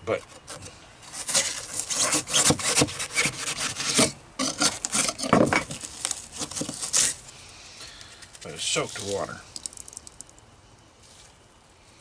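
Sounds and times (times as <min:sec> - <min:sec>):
scraping and rubbing foam: 0:00.4 - 0:07.2.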